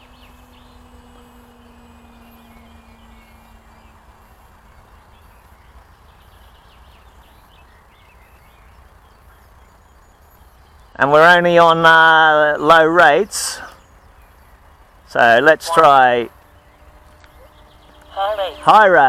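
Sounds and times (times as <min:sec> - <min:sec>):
faint bird chirps: 0:00.0 - 0:11.7
model plane motor humming: 0:00.0 - 0:19.0.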